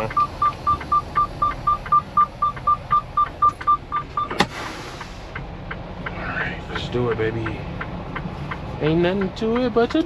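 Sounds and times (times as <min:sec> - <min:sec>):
electronic warning chime beeping: 0:00.0 - 0:04.4.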